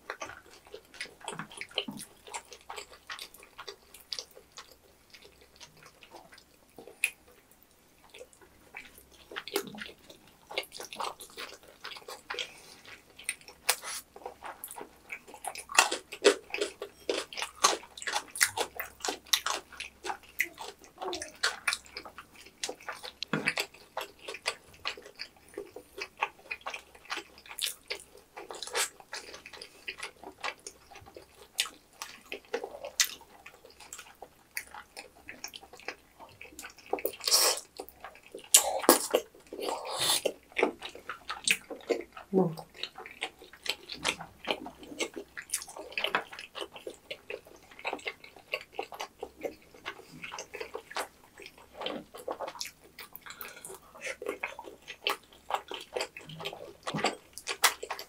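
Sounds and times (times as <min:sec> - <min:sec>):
wet chewing and lip smacks: 0:00.0 - 0:58.0.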